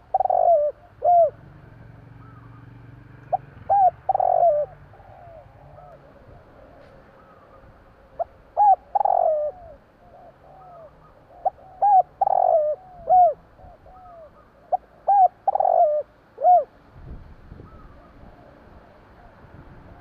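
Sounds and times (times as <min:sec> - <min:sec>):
dove cooing: 0:00.0 - 0:01.4, 0:02.2 - 0:16.8
faint coos: 0:00.0 - 0:01.4, 0:03.4 - 0:16.7.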